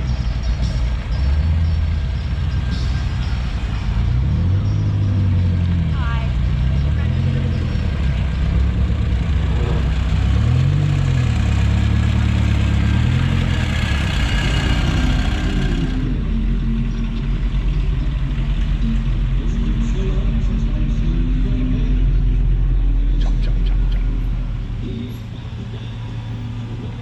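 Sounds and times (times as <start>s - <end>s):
car engines running slowly: 0.0s - 27.0s.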